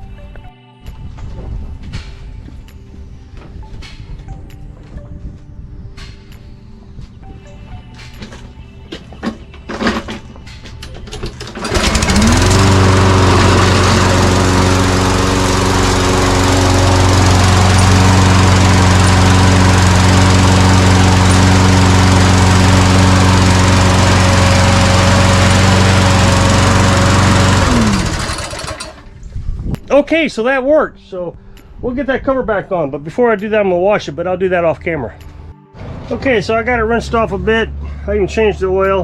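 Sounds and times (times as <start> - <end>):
lawn mower engine running: 11.0 - 29.2.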